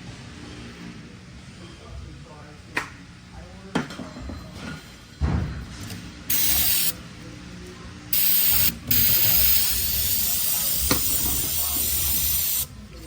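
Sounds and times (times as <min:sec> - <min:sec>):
pressurised spray hissing: 0:06.3 - 0:07.0, 0:08.2 - 0:12.8.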